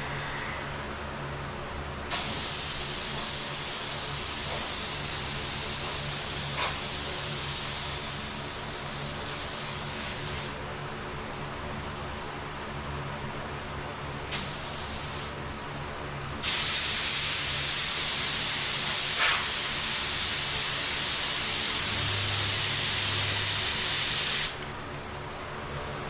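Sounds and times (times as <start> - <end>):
paint spray gun hissing: 2.1 - 10.6, 14.3 - 15.4, 16.4 - 24.7.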